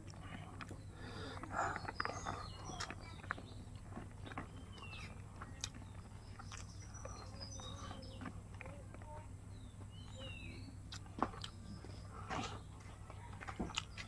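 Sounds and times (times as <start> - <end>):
person chewing with wet clicks: 0.0 - 9.2, 9.8 - 14.0
birds chirping: 0.0 - 14.0.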